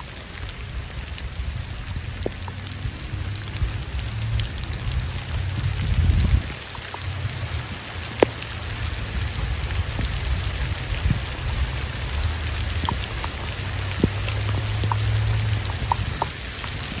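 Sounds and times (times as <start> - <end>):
raindrops ticking: 0.0 - 17.0
steady rain hiss: 0.0 - 17.0.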